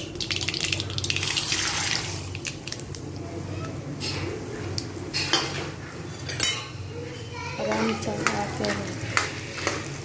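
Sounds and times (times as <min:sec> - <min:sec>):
food sizzling in hot oil: 0:00.0 - 0:03.0.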